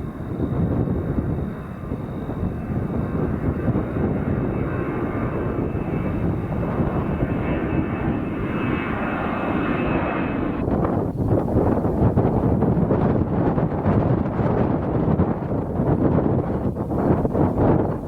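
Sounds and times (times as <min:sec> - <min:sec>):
high engine whine: 0:00.0 - 0:13.1
jet engines rumbling: 0:00.0 - 0:18.0.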